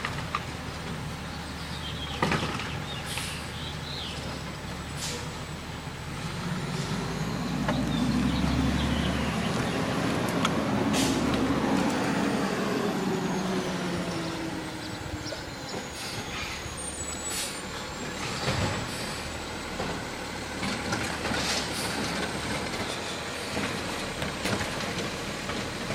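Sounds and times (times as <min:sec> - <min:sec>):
garbage truck engine: 0:00.0 - 0:25.9
short sharp hisses: 0:10.9 - 0:11.2.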